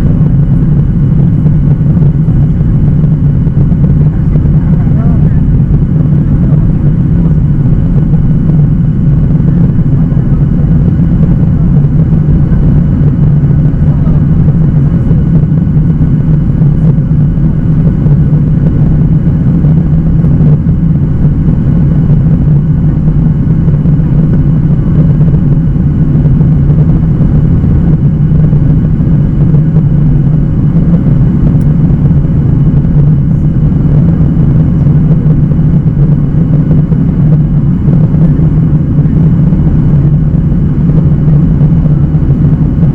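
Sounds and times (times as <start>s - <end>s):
airplane cabin engine drone: 0.0s - 42.9s.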